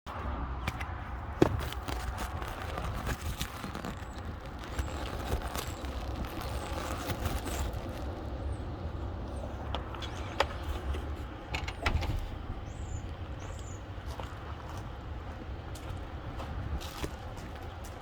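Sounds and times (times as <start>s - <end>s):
birds scratching in bedding: 1.4s - 9.2s.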